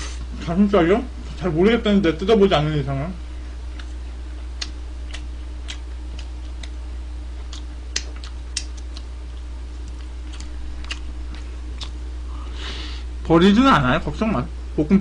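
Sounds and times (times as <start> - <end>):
low electrical hum: 0.0 - 15.0
person chewing and smacking lips: 3.7 - 12.6.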